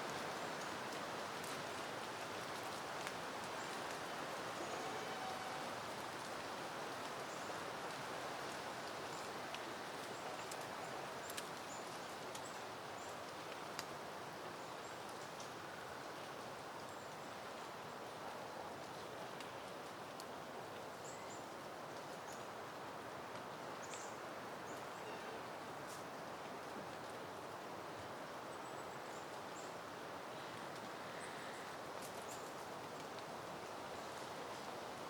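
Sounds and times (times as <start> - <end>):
wind rustling leaves: 0.0 - 35.0
faint ticks: 7.8 - 13.9.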